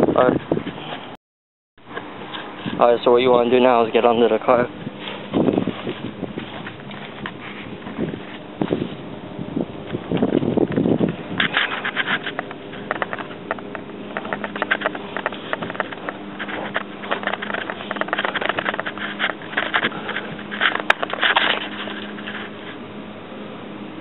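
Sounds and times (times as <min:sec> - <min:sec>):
scraping and rustling on ground: 0:01.9 - 0:09.1, 0:09.9 - 0:23.0.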